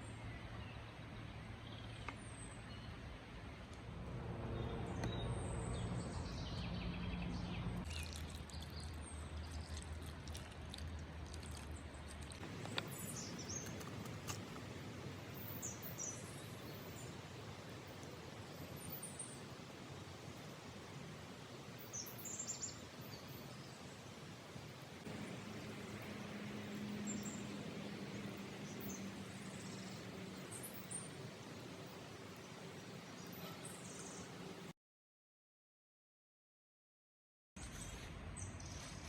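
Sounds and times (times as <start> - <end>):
distant engine hum: 3.0 - 23.4, 24.1 - 34.7
small birds chirping: 4.6 - 10.4, 11.3 - 21.0, 21.6 - 34.7.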